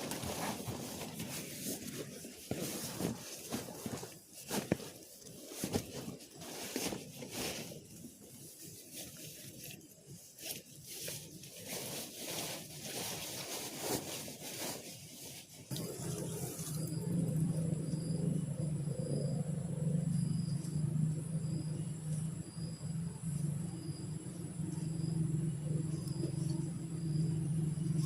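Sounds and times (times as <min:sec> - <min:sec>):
rustling and crackling: 0:00.0 - 0:17.6
insects chirping: 0:15.7 - 0:28.0
steady low hum: 0:15.7 - 0:28.0.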